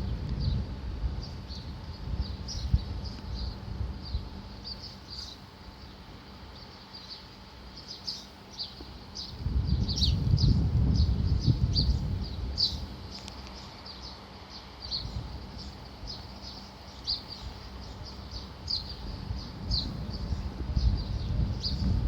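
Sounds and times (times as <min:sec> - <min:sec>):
low rumble: 0:00.0 - 0:04.5, 0:18.7 - 0:22.0
small birds chirping: 0:00.0 - 0:22.0.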